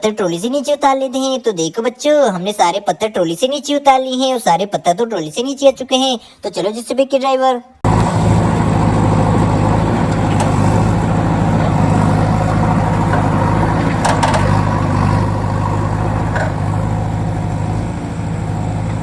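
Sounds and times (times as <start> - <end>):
vehicle engine humming: 7.8 - 19.0
faint clicks: 9.2 - 19.0.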